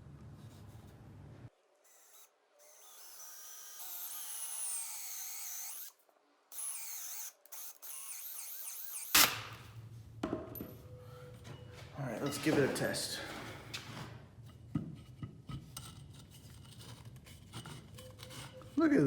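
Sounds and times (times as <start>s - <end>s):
power drill cutting wood: 1.9s - 5.9s, 6.5s - 9.5s.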